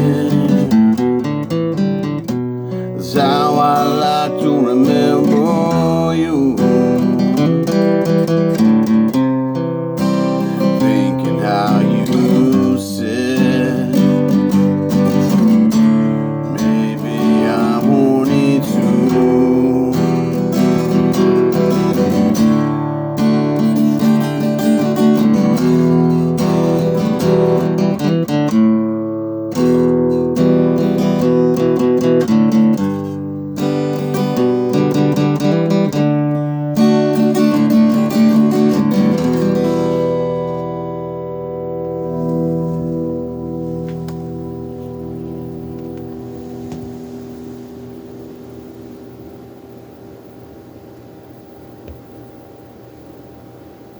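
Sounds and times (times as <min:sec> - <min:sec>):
person singing: 0:00.0 - 0:01.6, 0:02.9 - 0:07.6, 0:10.4 - 0:21.3
acoustic guitar strumming: 0:00.0 - 0:50.2.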